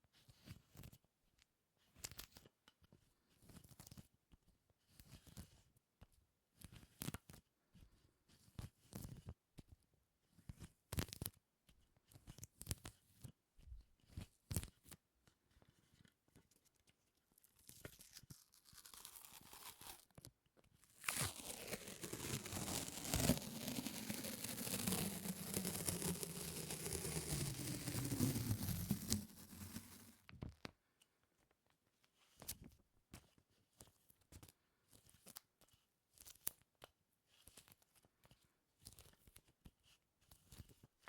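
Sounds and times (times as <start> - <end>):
sticky surface peeling: 18.0 - 20.1, 21.0 - 30.2.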